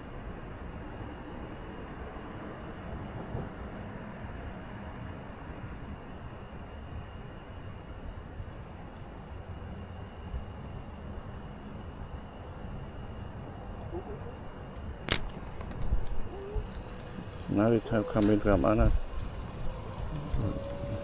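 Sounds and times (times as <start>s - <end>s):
river rumbling hiss: 9.2s - 21.0s.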